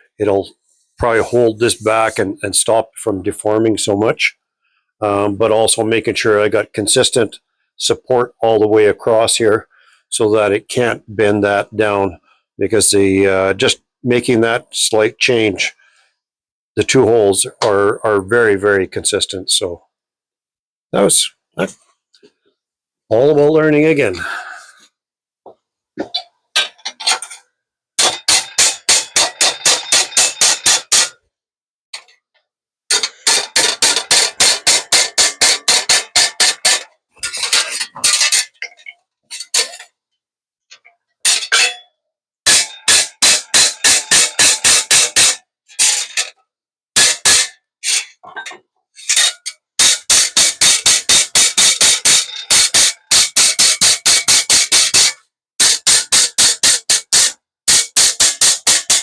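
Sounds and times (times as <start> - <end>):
hammer striking sheet metal: 28.0 - 31.2, 32.9 - 36.9, 42.5 - 46.3, 47.0 - 48.1, 49.1 - 59.0.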